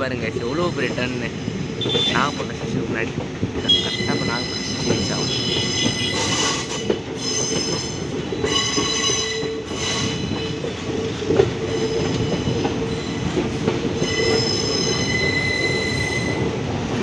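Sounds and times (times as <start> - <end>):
train wheels rumbling on track: 0.0 - 17.0
wheels squealing on rail: 3.6 - 17.0.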